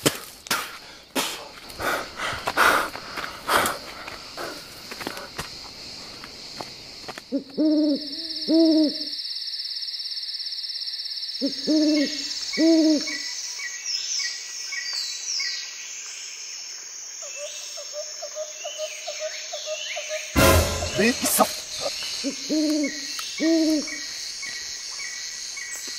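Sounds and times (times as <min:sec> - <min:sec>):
insects trilling: 0:00.0 - 0:25.9
owl hooting: 0:07.3 - 0:09.2, 0:11.4 - 0:13.3, 0:21.2 - 0:24.1.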